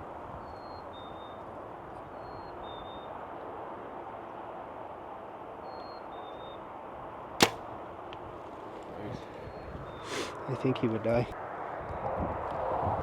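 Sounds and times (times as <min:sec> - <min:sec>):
bowstring snap: 0:07.4 - 0:07.6
steady outdoor hiss: 0:09.9 - 0:11.2.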